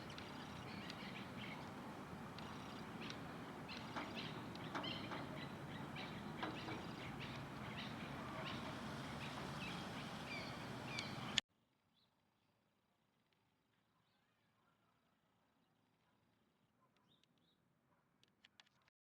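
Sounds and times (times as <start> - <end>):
background hiss: 0.0 - 11.4
small birds chirping: 0.0 - 11.4.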